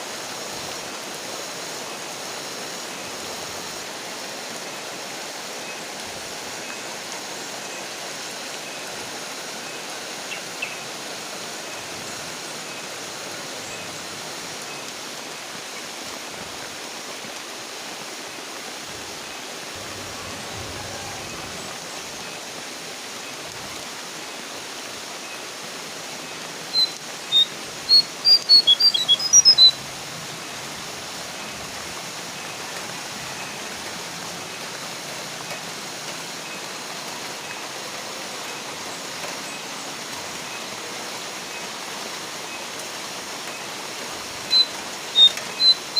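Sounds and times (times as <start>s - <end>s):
rain hiss: 0.0s - 45.9s
bird call high clear notes: 26.7s - 29.8s, 44.5s - 45.9s.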